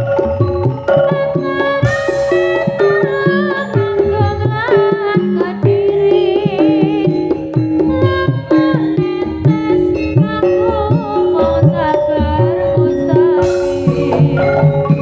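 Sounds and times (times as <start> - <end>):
wavering melodic line: 0.0 - 4.6, 13.4 - 15.0
hand drums: 0.0 - 15.0
gong-chime notes: 1.8 - 3.9, 13.4 - 15.0.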